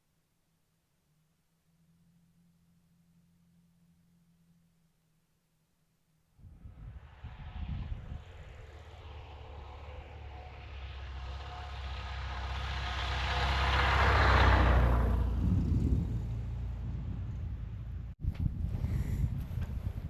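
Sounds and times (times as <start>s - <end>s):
propeller aircraft passing: 6.4s - 18.2s.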